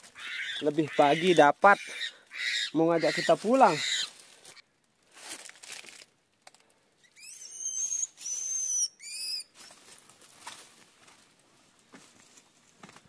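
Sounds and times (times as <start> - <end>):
soft rustle: 3.3 - 6.8, 9.5 - 13.0
bird whistled calls: 7.1 - 9.7.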